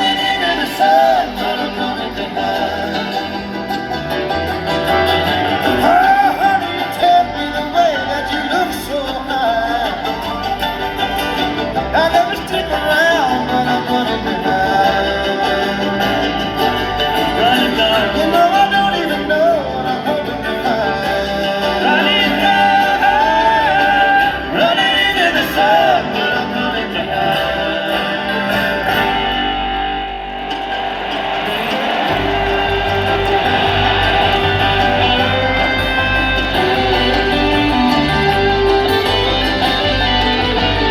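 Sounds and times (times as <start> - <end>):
man singing: 0.0 - 4.0, 5.0 - 29.6
bluegrass string band playing: 0.0 - 40.9.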